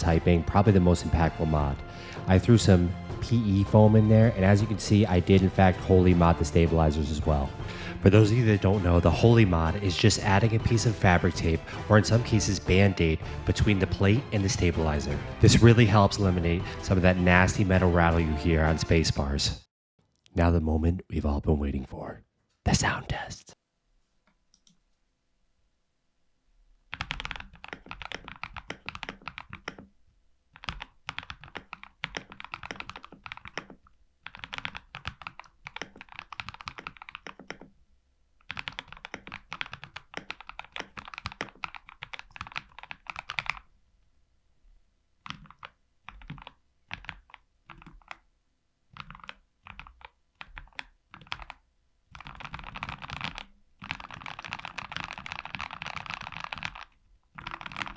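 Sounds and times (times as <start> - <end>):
typing on mechanical keyboard: 26.9 - 29.9, 30.5 - 37.7, 38.4 - 43.7, 45.2 - 48.2, 48.9 - 57.9.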